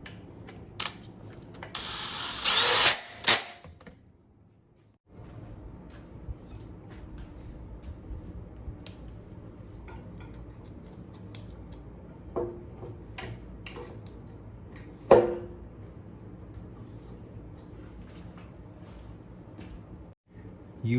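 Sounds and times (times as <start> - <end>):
steady low hum: 4.3 - 20.9
light clicks and taps of tools: 8.8 - 11.8.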